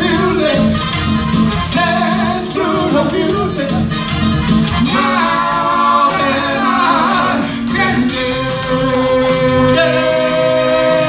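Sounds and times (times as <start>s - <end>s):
live soul band playing: 0.0s - 11.0s
person singing: 1.7s - 4.0s, 4.8s - 11.0s.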